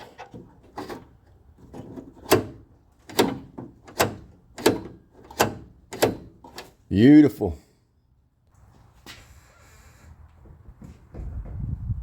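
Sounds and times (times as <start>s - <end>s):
car door lock clicking: 2.2s - 6.7s.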